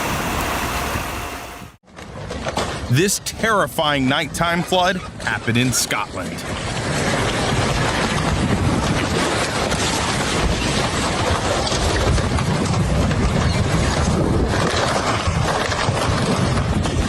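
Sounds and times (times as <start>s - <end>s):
floodwater rushing: 0.0s - 1.8s.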